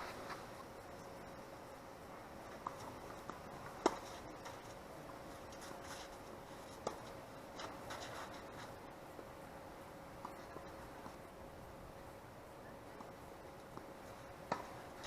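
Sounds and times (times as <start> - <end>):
tennis ball struck by racket: 2.6 - 4.1, 13.8 - 14.8.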